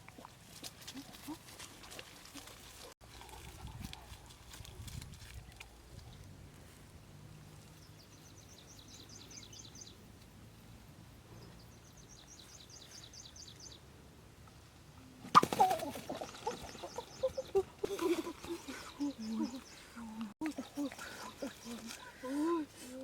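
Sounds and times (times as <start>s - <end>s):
small birds chirping: 7.6s - 10.7s, 11.3s - 13.8s, 16.1s - 22.6s.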